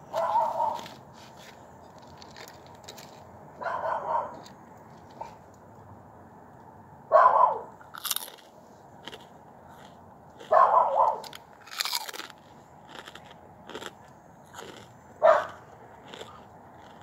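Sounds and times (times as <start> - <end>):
crunching and chewing fried food: 0.0 - 3.4, 7.8 - 17.0.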